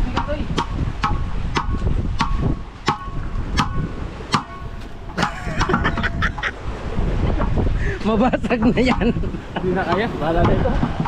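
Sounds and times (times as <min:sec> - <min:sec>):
boat engine droning: 0:02.6 - 0:07.7.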